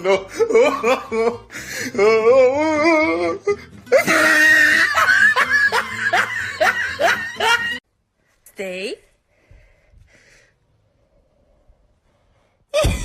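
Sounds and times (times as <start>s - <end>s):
person laughing hard: 0.0s - 2.0s, 3.9s - 7.8s
background music: 0.0s - 7.8s.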